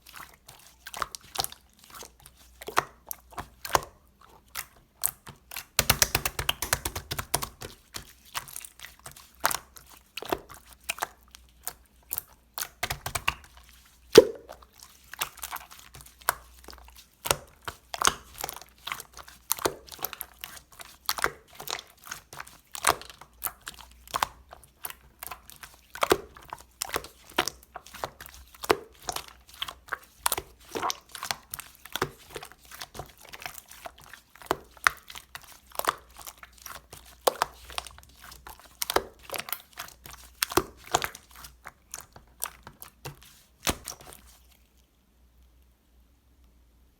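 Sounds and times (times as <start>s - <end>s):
slime squished by hand: 0.0s - 44.9s.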